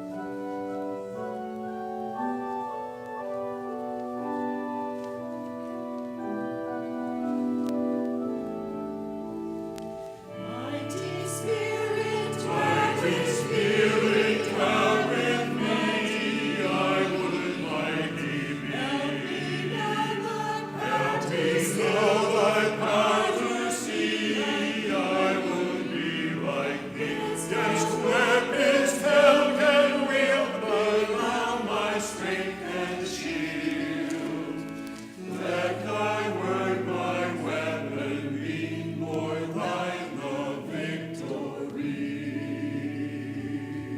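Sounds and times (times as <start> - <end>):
organ accompaniment: 0.0 - 43.9
choir singing: 10.3 - 43.9.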